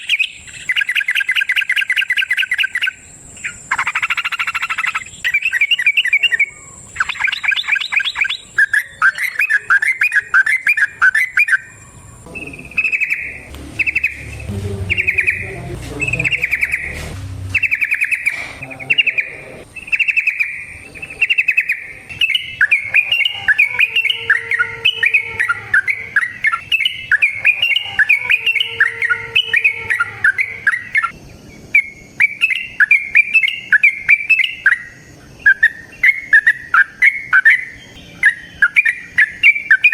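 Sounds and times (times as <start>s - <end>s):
bulbul singing bubbly song: 0.0s - 39.9s
low rumble: 12.0s - 18.7s.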